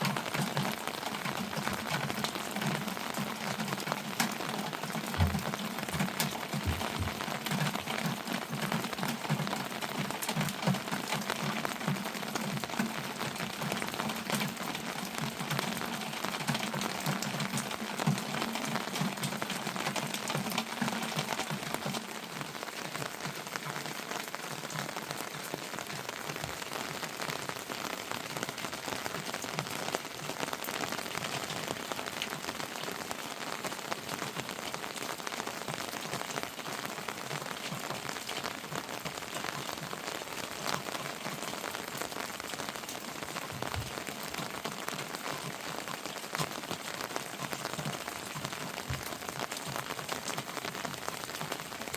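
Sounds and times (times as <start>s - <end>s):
heavy rain falling: 0.0s - 51.9s.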